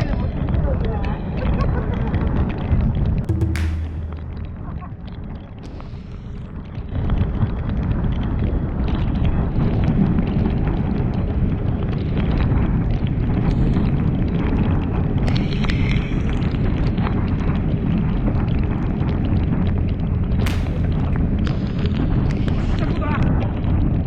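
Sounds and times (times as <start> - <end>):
sharp crack: 3.3 - 6.0, 20.5 - 22.2.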